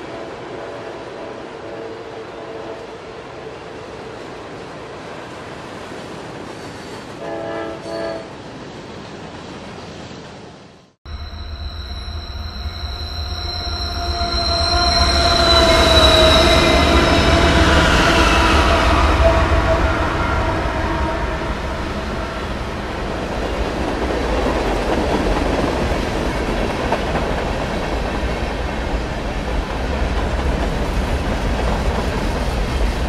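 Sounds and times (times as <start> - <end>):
train horn blasts: 0.0 - 3.1, 7.2 - 8.3, 11.3 - 22.8
train passing with low rumble: 0.0 - 33.0
high bending tones: 11.1 - 23.2.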